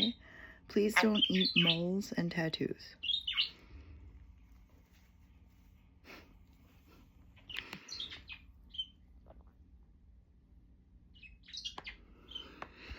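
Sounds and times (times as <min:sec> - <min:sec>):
parrot chirping and chattering: 0:00.0 - 0:02.3, 0:03.0 - 0:03.6, 0:07.4 - 0:09.0, 0:11.1 - 0:12.6.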